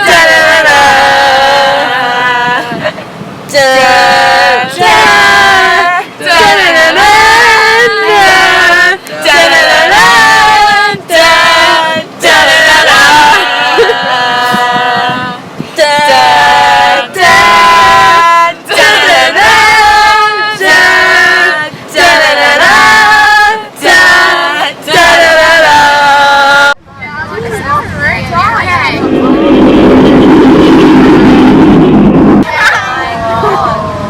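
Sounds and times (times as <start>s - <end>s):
voices singing: 0.0s - 26.8s.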